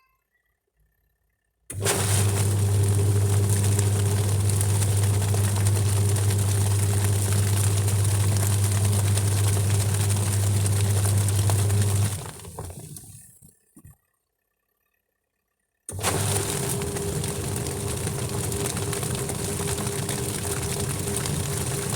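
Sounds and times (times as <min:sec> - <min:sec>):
electric appliance motor humming: 0:01.7 - 0:13.2, 0:15.9 - 0:21.9.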